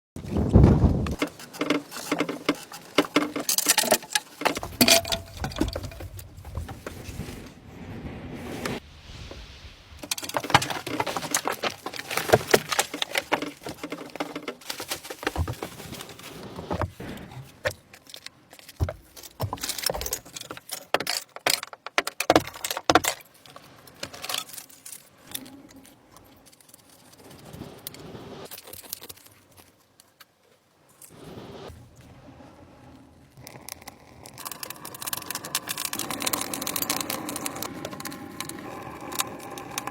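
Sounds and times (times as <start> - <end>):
small hard objects clinking: 1.1 - 6.8, 10.0 - 16.4, 33.4 - 39.9.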